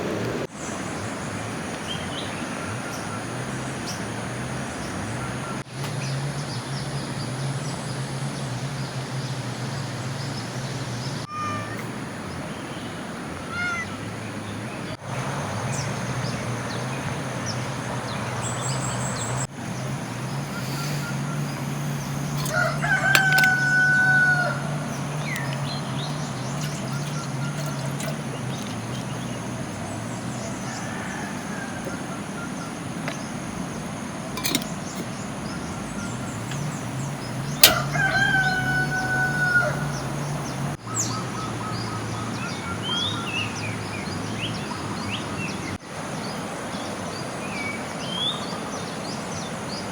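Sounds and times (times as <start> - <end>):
rushing water: 19.4 - 40.8
rooster crowing: 22.2 - 26.1, 30.4 - 32.3, 37.4 - 40.8.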